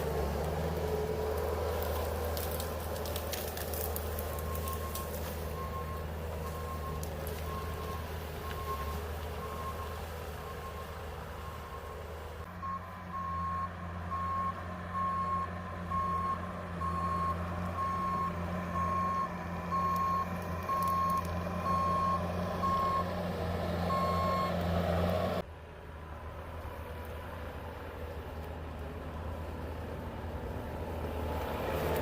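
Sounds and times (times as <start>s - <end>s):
vehicle engine running: 0.0s - 32.0s
reversing alarm beeping: 4.3s - 12.0s, 12.6s - 23.1s, 23.9s - 24.6s.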